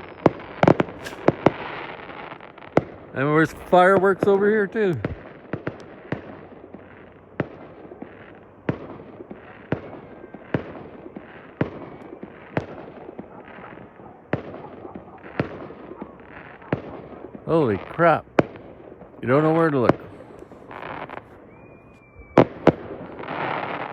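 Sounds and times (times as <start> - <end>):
fireworks bangs: 0.0 - 23.9
fireworks crackle: 0.0 - 23.9.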